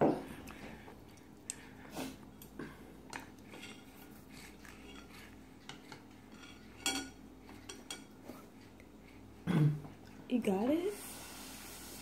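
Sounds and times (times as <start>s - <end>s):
baby chewing crunchy snack: 3.1s - 6.8s.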